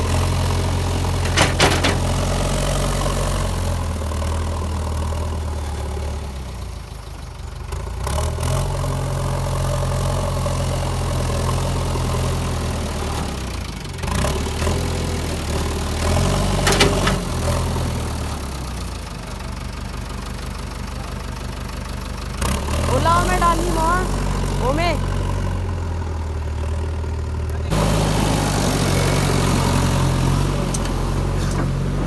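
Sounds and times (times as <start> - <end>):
diesel engine running: 0.0 - 32.0
brief clatter: 1.2 - 2.2, 16.6 - 17.2.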